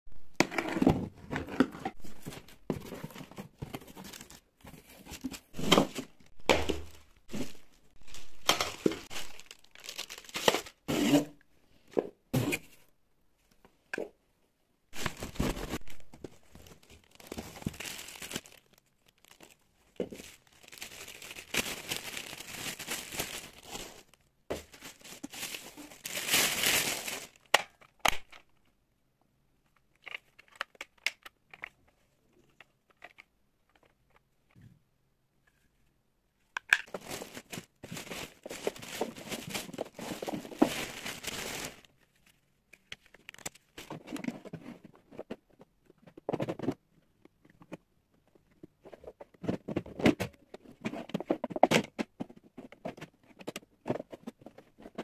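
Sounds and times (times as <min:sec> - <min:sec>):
plastic crinkling: 0:05.2 - 0:10.9, 0:15.0 - 0:27.8, 0:36.8 - 0:42.0.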